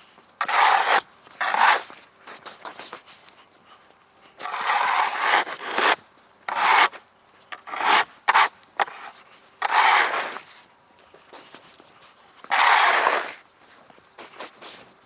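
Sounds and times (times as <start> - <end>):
snow shovel scraping on ice: 0.4 - 2.0, 4.4 - 7.0, 7.6 - 10.5, 12.4 - 13.4.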